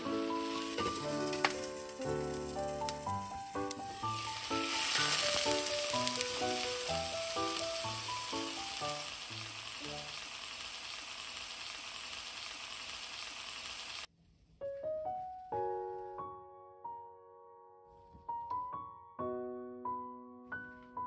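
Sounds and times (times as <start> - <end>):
soft piano background music: 0.0 - 10.1, 14.6 - 21.0
skewers sizzling in a frying pan: 0.0 - 14.1.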